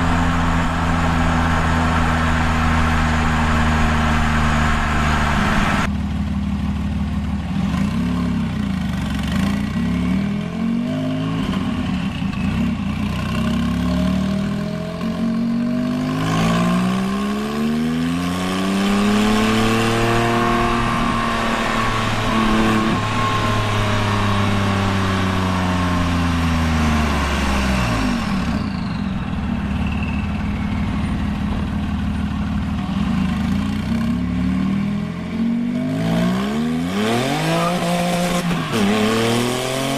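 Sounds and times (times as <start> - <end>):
car engine revving: 0.0 - 5.9, 8.9 - 39.9
faint turbo whistle: 28.4 - 31.4.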